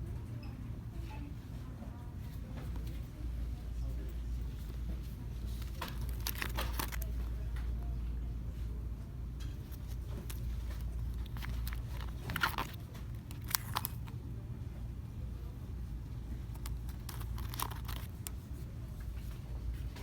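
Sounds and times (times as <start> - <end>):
low hum of shop noise: 0.0 - 20.0
crinkles and clicks of items: 4.2 - 8.2, 9.3 - 14.2, 16.1 - 20.0.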